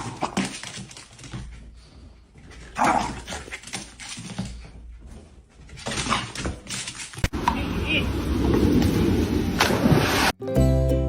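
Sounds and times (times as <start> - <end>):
dog barking: 2.8 - 3.3.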